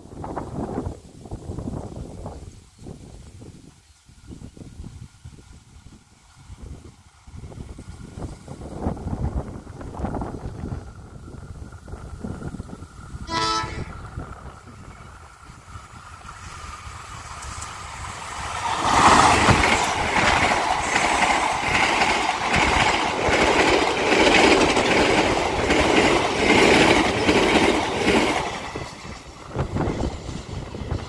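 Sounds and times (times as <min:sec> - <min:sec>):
passenger train rumbling past: 0:00.0 - 0:31.0
train wheels clattering over rail joints: 0:14.1 - 0:31.0.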